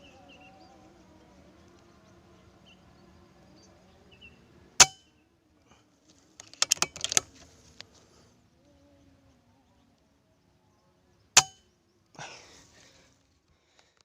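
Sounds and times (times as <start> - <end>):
metallic clicks and clatter: 6.3 - 7.5.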